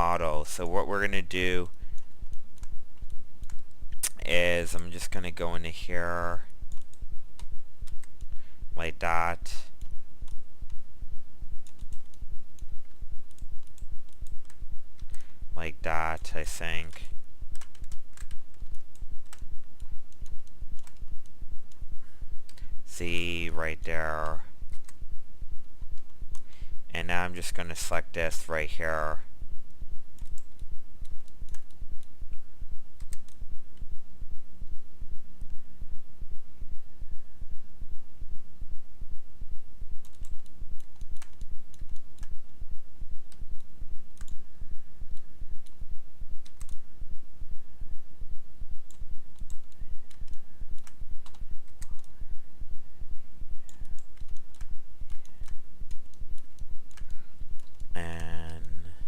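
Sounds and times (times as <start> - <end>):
pulsing low hum: 1.0 - 4.0, 5.4 - 16.3, 17.0 - 27.0, 29.2 - 59.0
computer mouse clicks: 1.9 - 4.2, 11.6 - 12.7, 17.6 - 21.1, 30.2 - 32.1, 33.0 - 33.4, 40.0 - 42.4, 43.3 - 44.4, 46.4 - 46.8, 48.9 - 52.2, 53.6 - 58.8.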